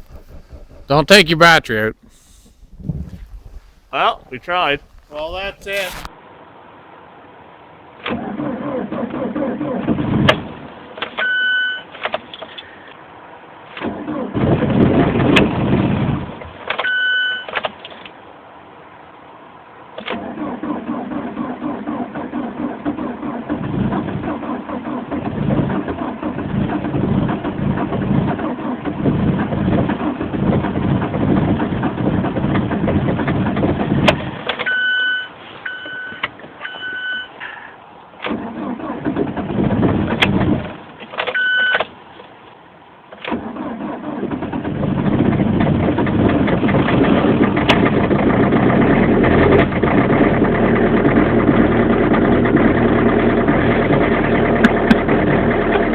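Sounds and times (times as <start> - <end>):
diesel engine running: 0.0 - 2.8, 43.4 - 55.9
diesel engine cranking: 0.0 - 6.1, 8.0 - 18.2, 19.8 - 55.9
electronic warning beeps: 34.7 - 37.4.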